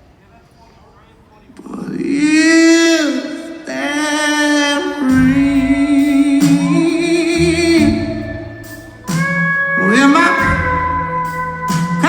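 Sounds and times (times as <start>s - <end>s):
person singing long vibrato notes: 2.0s - 12.0s
live soul band playing: 4.8s - 12.0s
bass notes: 5.1s - 12.0s.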